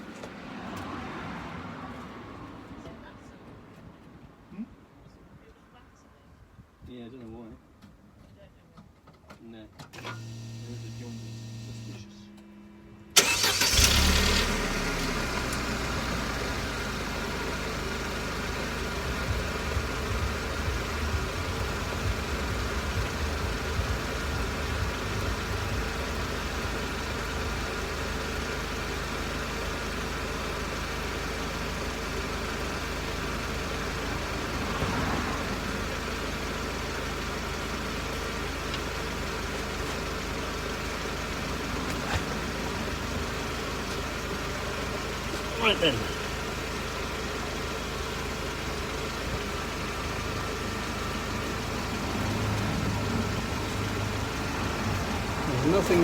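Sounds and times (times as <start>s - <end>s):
car engine starting and idling: 0.0s - 3.0s, 9.0s - 56.0s
raspy exhaust: 13.1s - 56.0s.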